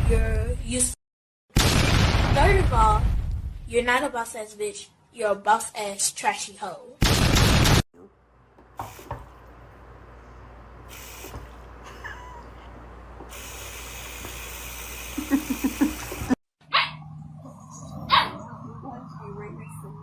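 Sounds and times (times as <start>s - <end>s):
dog barking: 16.7s - 17.0s, 18.0s - 18.4s.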